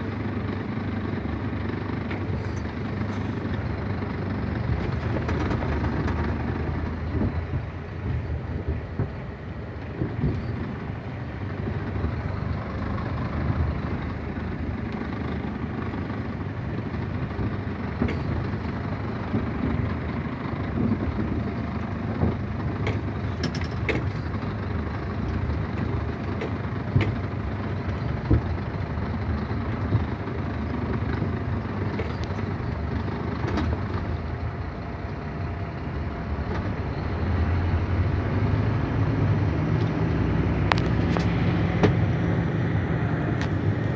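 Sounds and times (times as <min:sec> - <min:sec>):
truck engine and road noise: 0:00.0 - 0:43.9
sharp knocks and rattles: 0:04.8 - 0:06.4.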